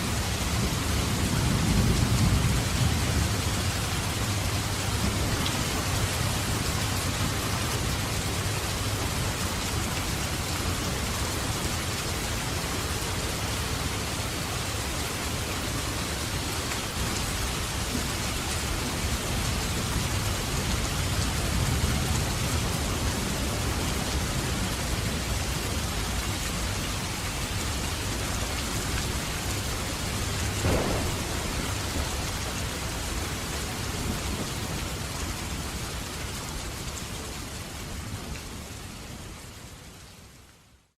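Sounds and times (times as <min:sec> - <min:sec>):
steady rain: 0:00.0 - 0:40.9
thunder rumbling: 0:00.1 - 0:07.4, 0:29.0 - 0:35.2
sharp knock: 0:30.6 - 0:31.6.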